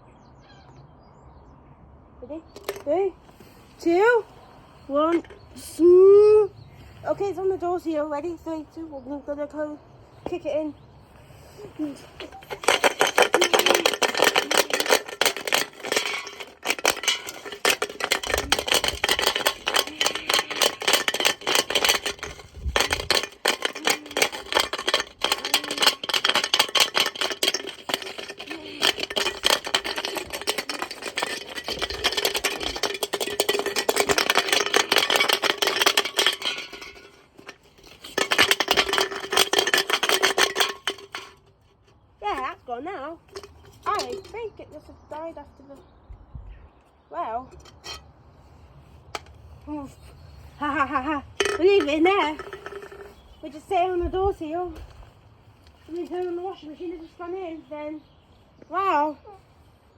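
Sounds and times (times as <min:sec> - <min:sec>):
brick clattering in washing machine: 0:12.2 - 0:41.6.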